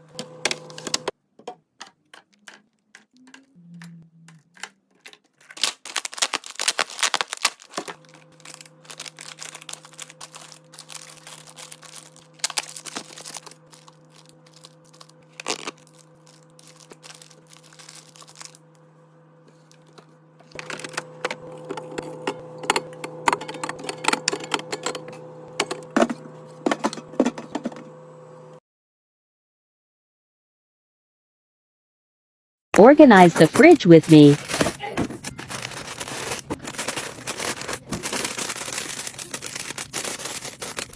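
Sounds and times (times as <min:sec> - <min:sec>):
plastic packaging being handled: 0:04.6 - 0:18.6, 0:33.1 - 0:40.9
steady low hum: 0:06.6 - 0:28.6, 0:32.8 - 0:40.9.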